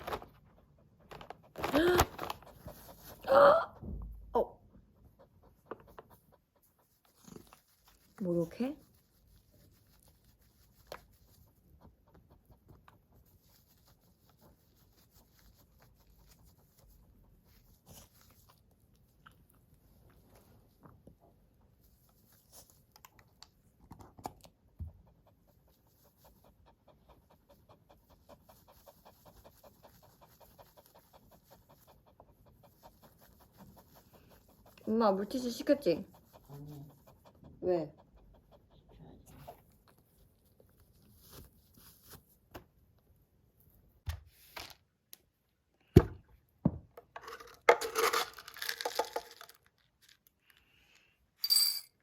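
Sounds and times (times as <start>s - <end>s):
dog panting: 0.0s - 3.3s, 4.6s - 20.0s, 24.5s - 40.9s.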